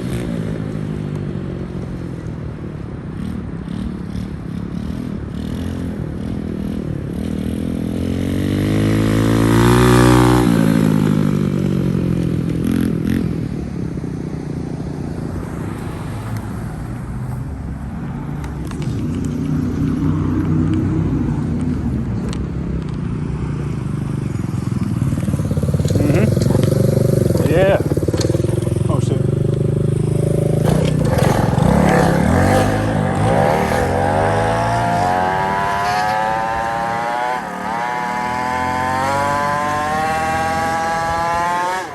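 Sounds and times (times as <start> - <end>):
small motorbike engine running: 24.4 - 41.9.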